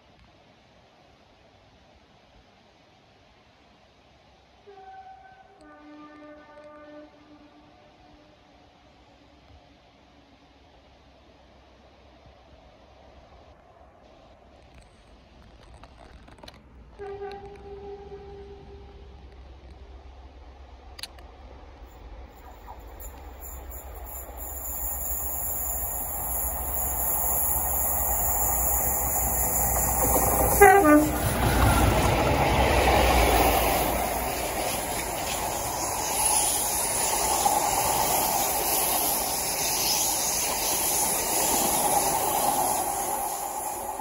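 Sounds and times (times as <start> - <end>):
train rumble and wheel noise: 3.0 - 44.0
train horn note: 4.6 - 8.6, 17.0 - 19.1, 30.4 - 31.5.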